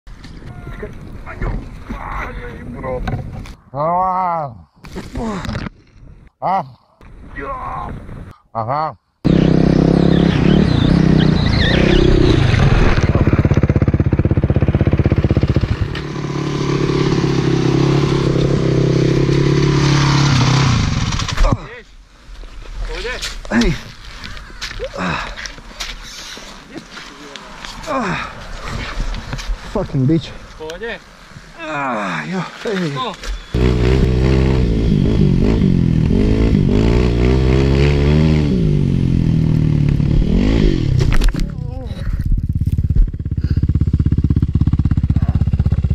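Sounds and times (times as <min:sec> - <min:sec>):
motorcycle engine running: 0:09.3 - 0:21.4, 0:42.2 - 0:45.9.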